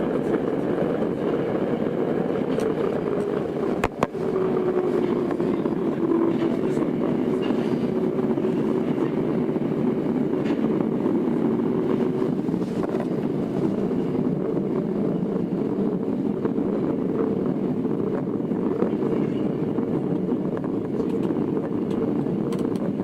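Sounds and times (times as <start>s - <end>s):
subway wheels rumbling on rails: 0.0s - 23.0s.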